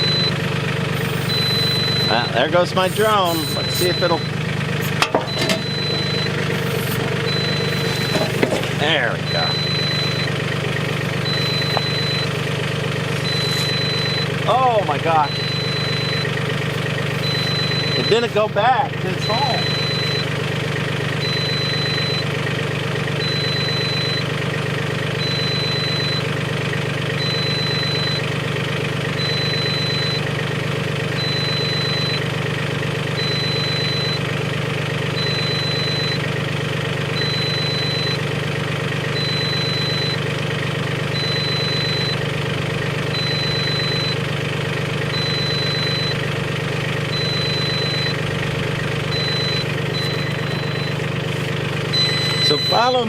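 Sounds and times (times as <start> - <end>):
tractor diesel engine idling: 0.0 - 53.0.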